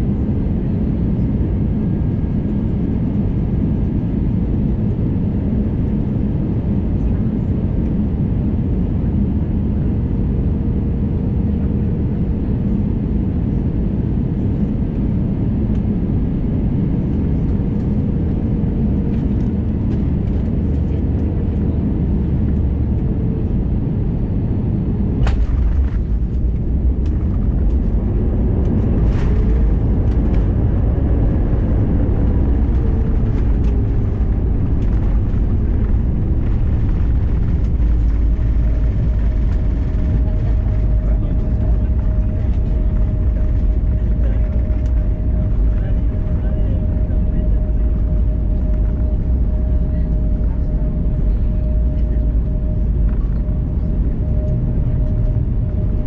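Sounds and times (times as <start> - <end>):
aircraft cabin rumble: 0.0 - 56.0.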